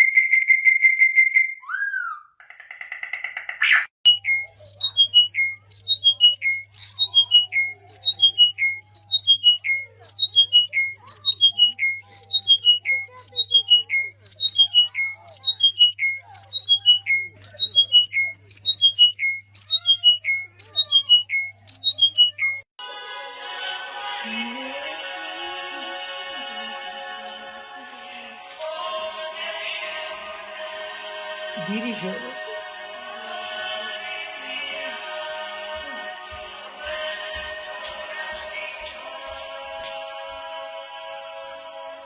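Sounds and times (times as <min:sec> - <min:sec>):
parrot whistling call: 0:03.0 - 0:22.6.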